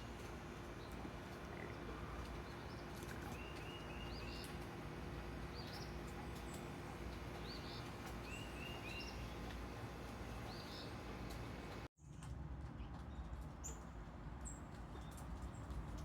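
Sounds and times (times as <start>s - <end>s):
birds chirping: 5.4s - 11.8s.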